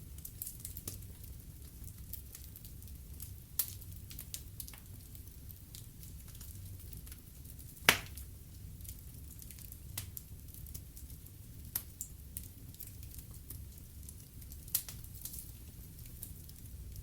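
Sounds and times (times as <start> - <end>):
logs crackling in fireplace: 0.0 - 17.0.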